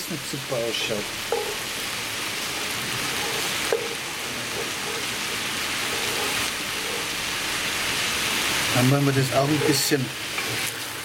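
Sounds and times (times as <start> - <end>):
vegetables sizzling in oil: 0.0 - 11.0
spoon knocking on pot: 1.3 - 1.7, 3.1 - 7.1
wooden spoon stirring: 1.3 - 1.8, 2.4 - 11.0.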